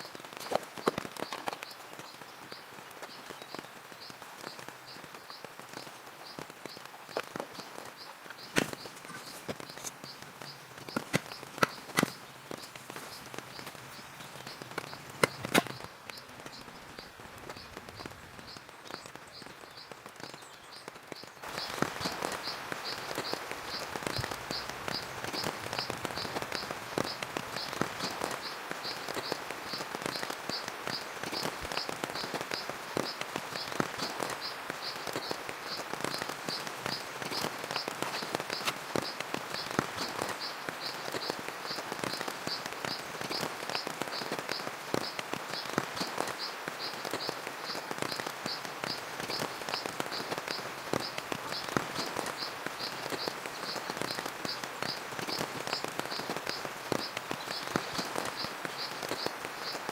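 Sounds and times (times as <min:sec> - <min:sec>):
rain drops ticking: 0:00.0 - 0:59.9.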